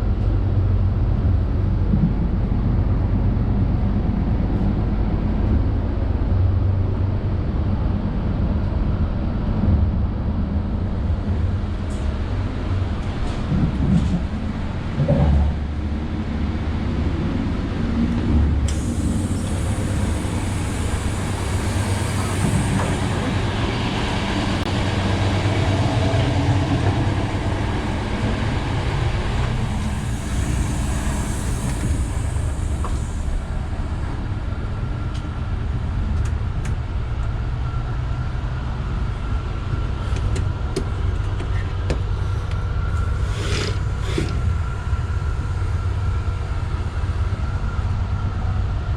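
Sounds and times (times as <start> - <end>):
train running rumble: 0.0 - 48.9.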